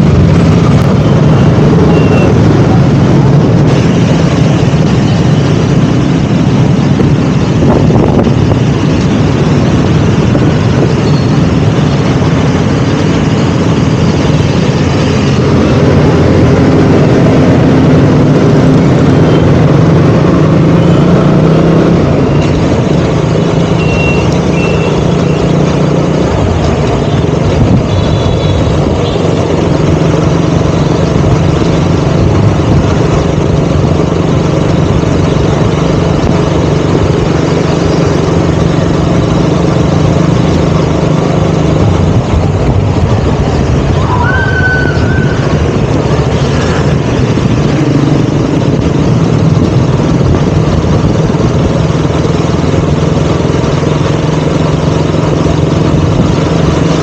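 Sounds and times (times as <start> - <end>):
motorcycle engine running: 0.0 - 57.0
high-pitched tone: 1.3 - 2.8, 23.6 - 25.6, 44.0 - 45.7.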